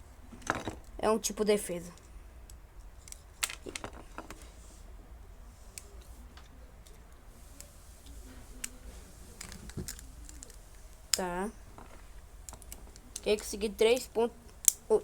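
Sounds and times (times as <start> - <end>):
small plastic parts clicking: 2.0 - 4.5, 9.4 - 14.9.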